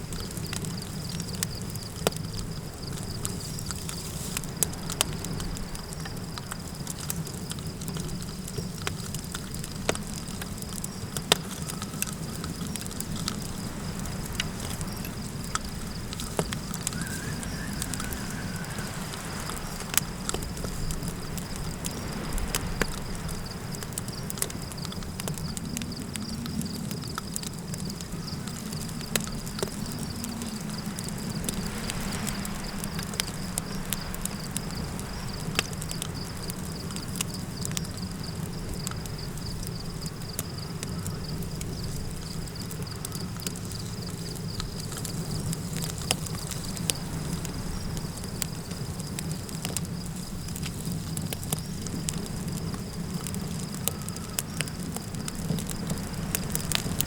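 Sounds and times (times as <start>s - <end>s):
campfire crackling and popping: 0.0s - 57.0s
wind rushing: 15.8s - 23.7s.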